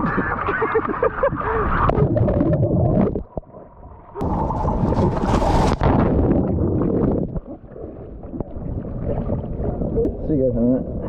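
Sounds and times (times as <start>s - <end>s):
water splashing against boat: 4.2s - 10.2s.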